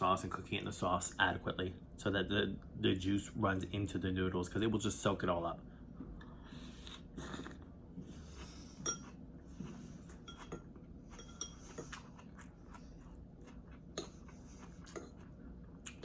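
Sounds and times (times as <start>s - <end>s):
soft chewing of noodles: 5.6s - 16.0s.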